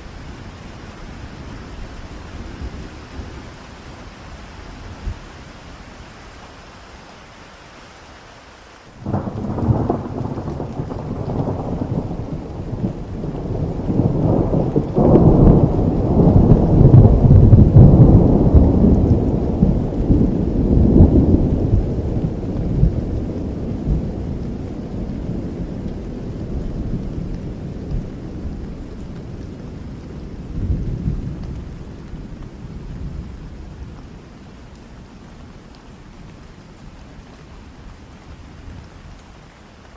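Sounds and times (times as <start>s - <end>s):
steady rain: 0.0s - 39.9s
thunder rolling: 9.0s - 28.7s.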